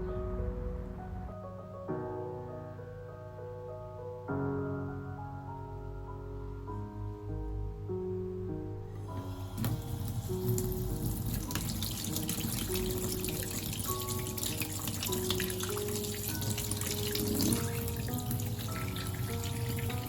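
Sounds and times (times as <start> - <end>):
soft background music: 0.0 - 20.0
tap water running into sink: 9.0 - 20.0.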